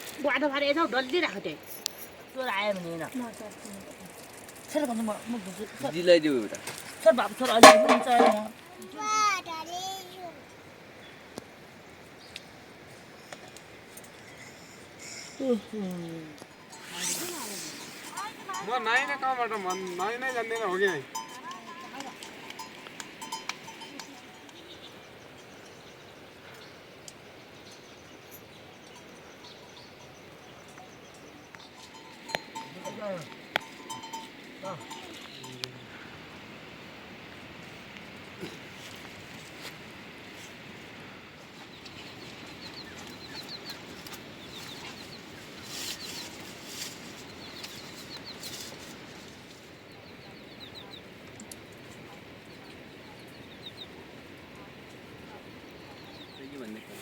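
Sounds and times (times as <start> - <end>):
outdoor background hiss: 0.0 - 57.0
chickens clucking: 7.6 - 8.5
faint high chirps and ticks: 10.0 - 16.8, 17.9 - 36.0
steady hiss: 16.6 - 21.1.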